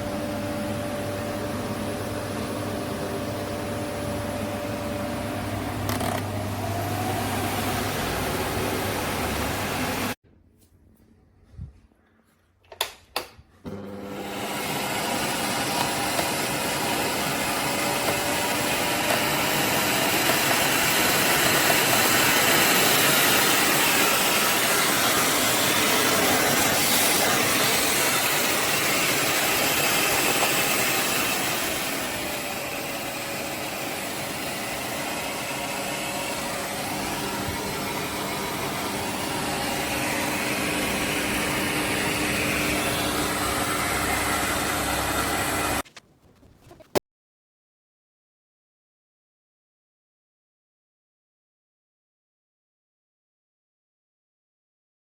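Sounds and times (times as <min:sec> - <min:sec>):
vacuum cleaner running: 0:00.0 - 0:10.2, 0:13.6 - 0:45.8.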